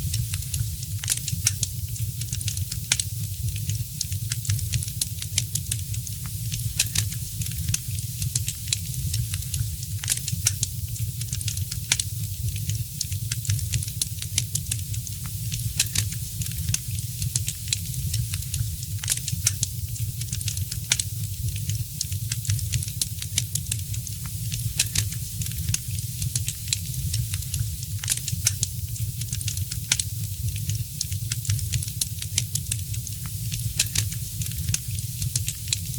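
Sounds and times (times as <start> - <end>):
fireplace fire crackling: 0.0 - 35.9.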